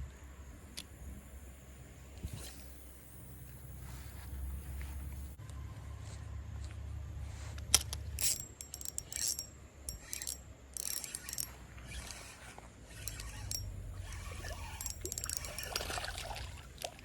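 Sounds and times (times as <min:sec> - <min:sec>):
fishing reel clicking: 0:07.8 - 0:16.1.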